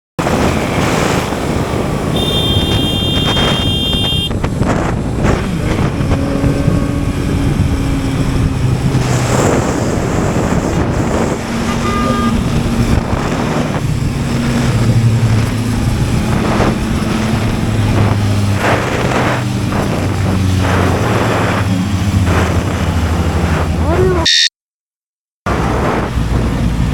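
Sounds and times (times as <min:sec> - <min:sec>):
wind rush on microphone: 0:00.2 - 0:24.2, 0:25.5 - 0:26.9
motorcycle engine running: 0:02.0 - 0:05.0
high steady beep: 0:02.2 - 0:04.3, 0:24.2 - 0:24.5.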